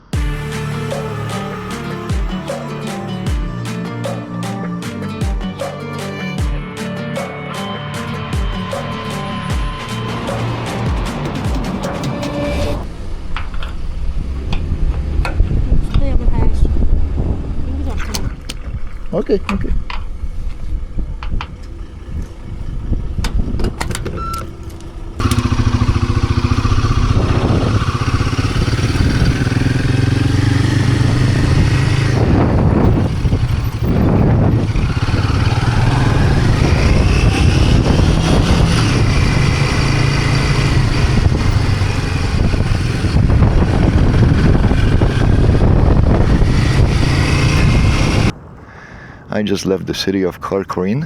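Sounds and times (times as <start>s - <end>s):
motorcycle engine running: 0.0s - 4.4s, 19.7s - 48.3s.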